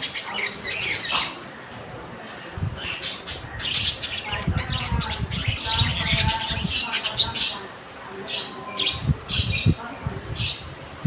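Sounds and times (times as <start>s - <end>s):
parrots chirping and chattering: 0.0s - 1.6s, 2.7s - 10.7s.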